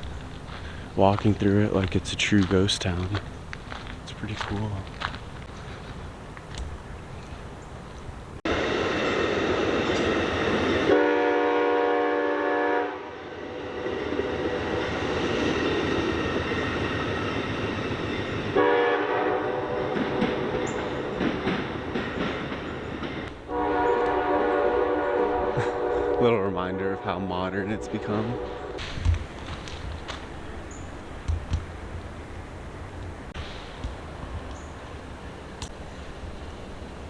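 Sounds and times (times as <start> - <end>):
train wheels rumbling on rails: 0.0 - 7.5, 8.5 - 11.9, 13.2 - 37.0
train air horn blast: 10.8 - 13.8, 18.6 - 20.6, 23.5 - 29.0.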